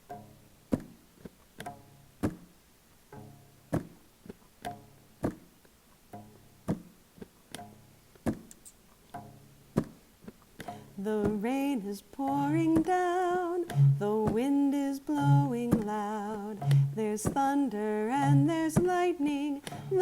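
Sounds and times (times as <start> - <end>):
short plucked notes: 10.6 - 17.4.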